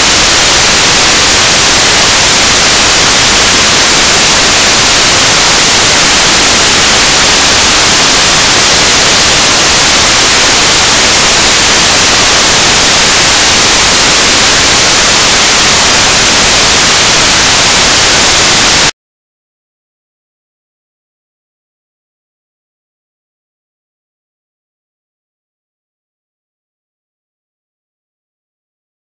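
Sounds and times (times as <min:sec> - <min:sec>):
loud static hiss: 0:00.0 - 0:18.9.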